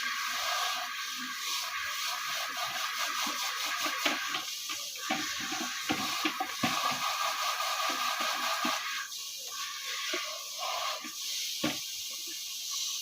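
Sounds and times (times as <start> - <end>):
running water hissing: 0.0 - 13.0.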